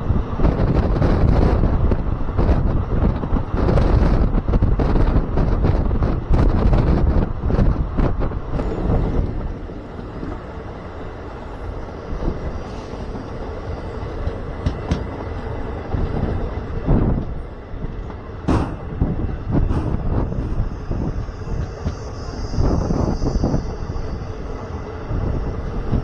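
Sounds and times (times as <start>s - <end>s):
train rumble and rattle: 0.0s - 26.0s
sharp knocks: 18.4s - 19.0s, 19.7s - 20.1s.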